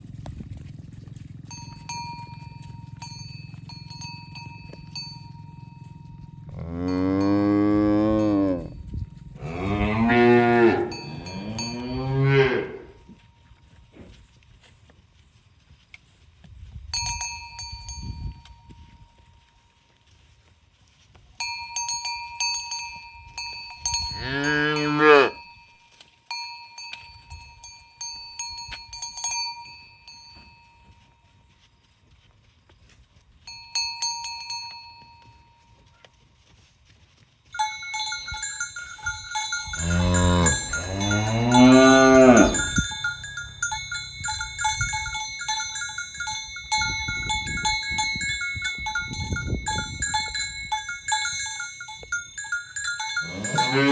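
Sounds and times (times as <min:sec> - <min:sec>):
cowbells ringing: 0:00.0 - 0:14.0, 0:16.8 - 0:20.4, 0:21.1 - 0:53.9
cow mooing: 0:06.1 - 0:08.8, 0:09.4 - 0:13.0, 0:24.2 - 0:25.4, 0:39.8 - 0:42.8, 0:53.2 - 0:53.9.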